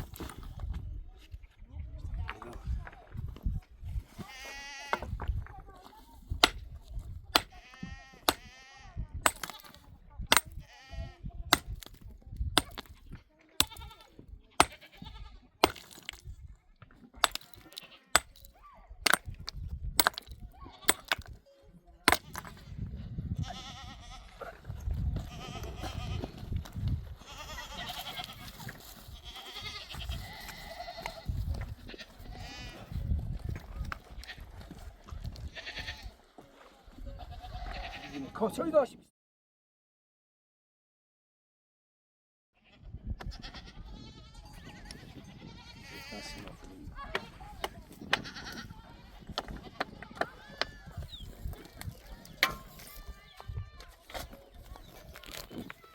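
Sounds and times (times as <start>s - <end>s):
sheep and goats bleating: 4.2s - 5.2s, 7.4s - 9.7s, 10.6s - 11.3s, 13.6s - 15.9s, 17.2s - 18.4s, 22.2s - 26.5s, 27.2s - 33.1s, 35.3s - 36.2s, 37.0s - 38.5s, 42.6s - 53.8s.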